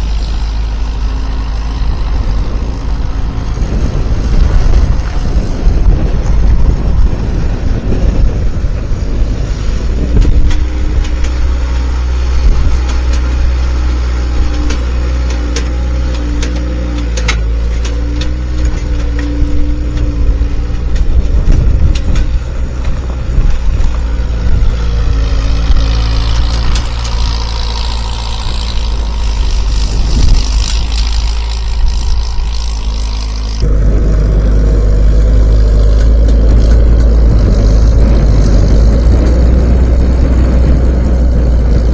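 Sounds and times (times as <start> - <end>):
diesel engine under load: 0.0 - 41.9
metal clanks and knocks: 10.1 - 33.6.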